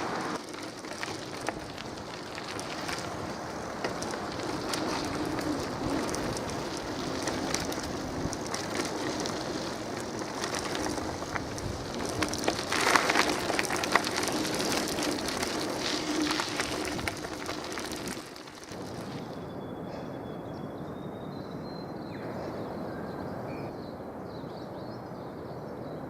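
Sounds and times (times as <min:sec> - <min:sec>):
bicycle tyre and road noise: 0:00.0 - 0:19.7
bicycle clicks and rattles: 0:00.4 - 0:19.2.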